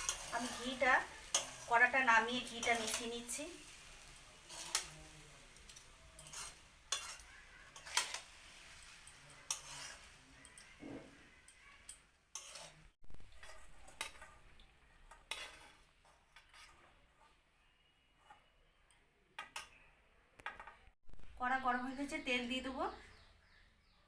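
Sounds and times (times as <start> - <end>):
metal spatula scraping a wok: 0.0 - 17.4, 18.1 - 18.6.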